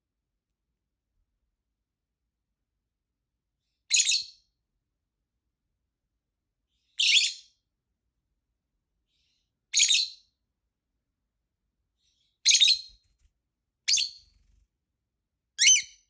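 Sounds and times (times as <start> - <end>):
lovebird high-pitched calls: 3.9 - 4.4, 7.0 - 7.5, 9.7 - 10.2, 12.4 - 13.0, 13.9 - 14.2, 15.6 - 16.0.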